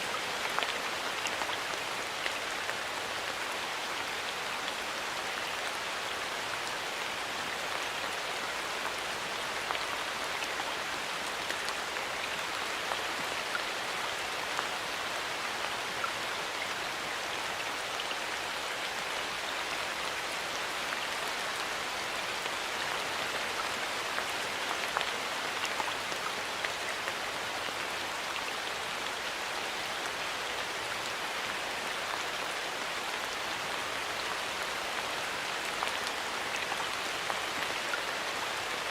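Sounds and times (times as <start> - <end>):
rain falling in a forest: 0.0 - 38.9.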